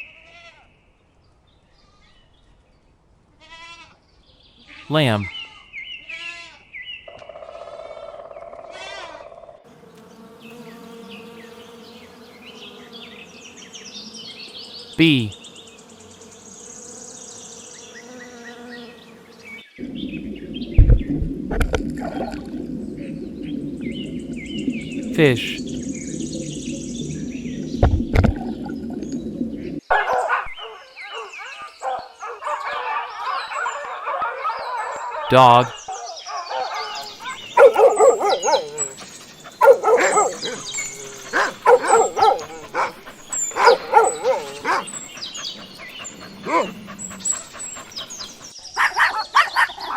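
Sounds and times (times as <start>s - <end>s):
bees buzzing: 9.7s - 21.2s, 37.4s - 48.5s
birds chirping faintly: 9.7s - 34.0s, 35.3s - 49.9s
dog barking high-pitched: 29.9s - 35.7s, 36.5s - 39.0s, 39.6s - 40.7s, 41.3s - 44.9s, 46.3s - 47.0s, 48.8s - 49.9s.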